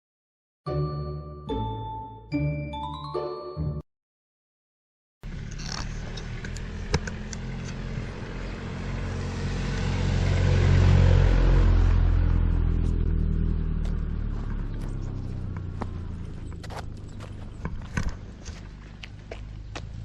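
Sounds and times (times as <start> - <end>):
passing car engine hum: 5.3 - 20.0.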